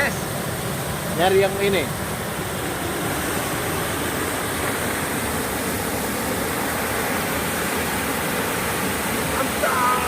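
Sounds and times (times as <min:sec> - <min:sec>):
waterfall rushing water: 0:00.0 - 0:10.0.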